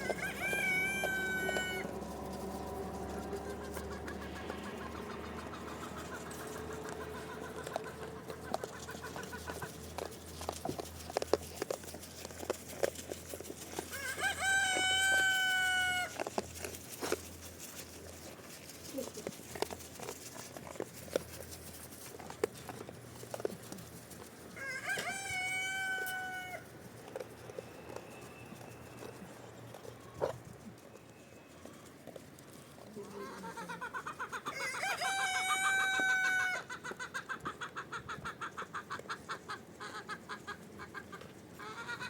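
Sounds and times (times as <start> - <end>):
rooster crowing: 0.0 - 2.0, 13.9 - 16.2, 24.6 - 26.7, 34.5 - 36.7.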